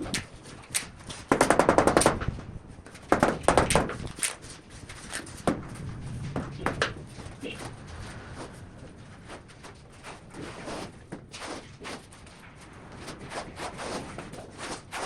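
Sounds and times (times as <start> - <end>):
rapid sharp knocking: 3.1 - 7.3.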